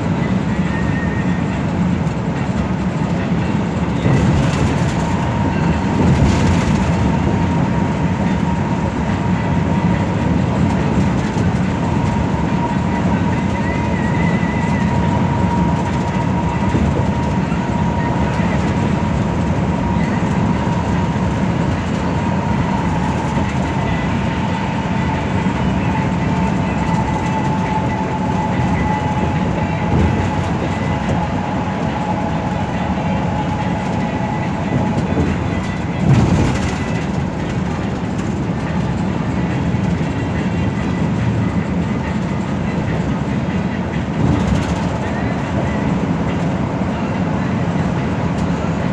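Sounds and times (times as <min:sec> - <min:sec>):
bus engine and road rumble: 0:00.0 - 0:48.9
bus bump: 0:03.8 - 0:08.6, 0:14.4 - 0:43.4, 0:44.0 - 0:46.6.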